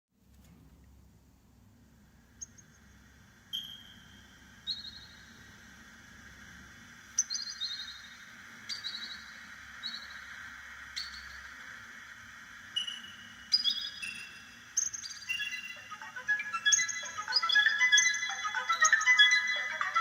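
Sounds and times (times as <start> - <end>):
synthesized steady hiss: 0.2 - 20.0
synthesized bird-like chirps: 3.5 - 5.5, 7.1 - 12.0, 12.7 - 20.0.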